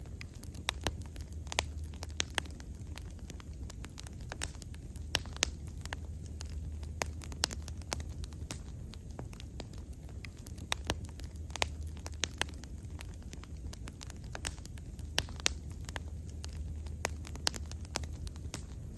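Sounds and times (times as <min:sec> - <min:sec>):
wood fire crackling and popping: 0:00.0 - 0:18.9.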